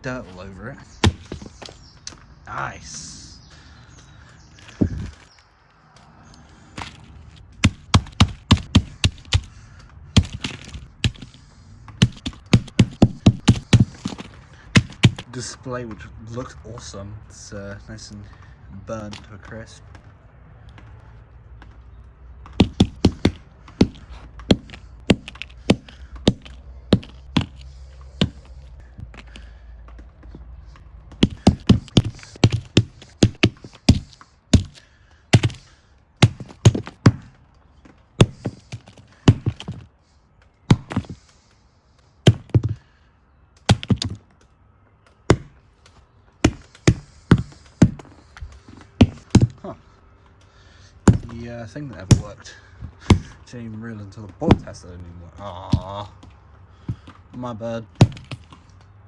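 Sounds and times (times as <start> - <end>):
hammer striking phone parts: 1.0 - 1.8, 6.8 - 7.0, 7.6 - 9.5, 10.2 - 15.3, 22.4 - 29.2, 31.1 - 37.3, 42.2 - 42.8, 43.6 - 44.2, 45.3 - 45.6, 46.4 - 49.6, 57.9 - 58.6.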